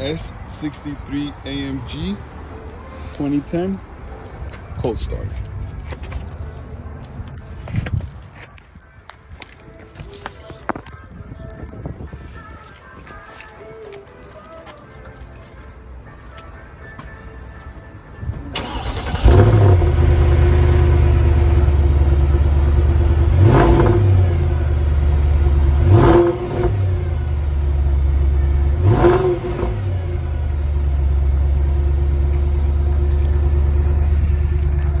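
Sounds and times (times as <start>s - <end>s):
engine throttle blips: 18.4s - 35.0s
engine cranking: 18.5s - 24.2s, 31.0s - 35.0s
car engine cold idle: 18.6s - 23.4s, 30.5s - 35.0s.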